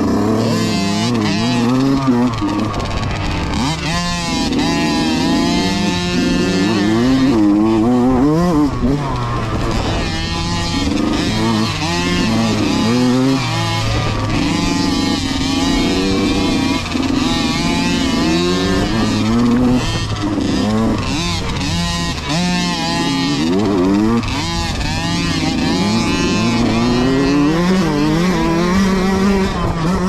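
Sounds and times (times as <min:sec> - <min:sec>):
dirt bike engines revving: 0:00.0 - 0:30.0
steady engine tone: 0:00.0 - 0:30.0.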